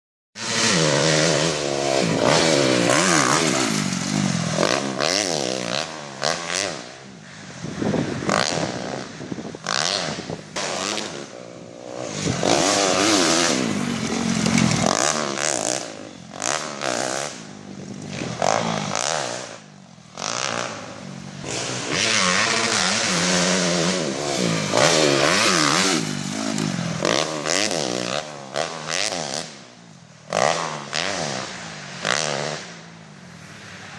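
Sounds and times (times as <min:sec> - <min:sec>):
dirt bike engine revving: 0:00.4 - 0:07.1, 0:08.0 - 0:32.8
rattling and scraping: 0:12.2 - 0:17.3.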